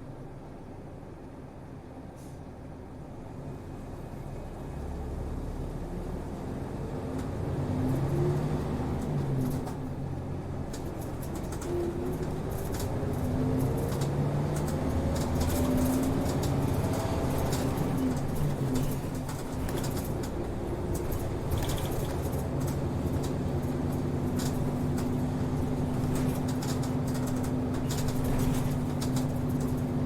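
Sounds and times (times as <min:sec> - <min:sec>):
bus engine accelerating: 0:00.1 - 0:30.0
body rattles: 0:15.2 - 0:30.0.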